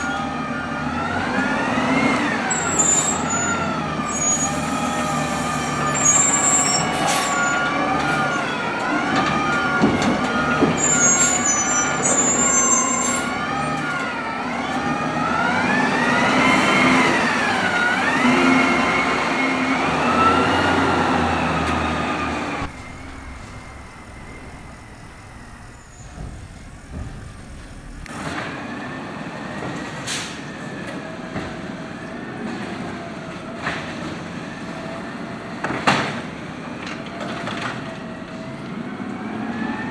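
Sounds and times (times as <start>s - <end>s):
hydraulic arm whining: 0.0s - 28.6s
garbage truck idling: 0.0s - 35.6s.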